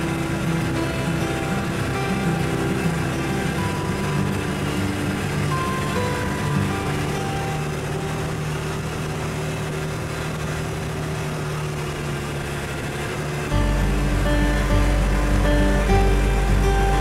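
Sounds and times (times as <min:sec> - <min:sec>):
background music: 0:00.0 - 0:09.1, 0:13.5 - 0:17.0
atv engine running: 0:00.0 - 0:17.0
road noise: 0:00.0 - 0:17.0.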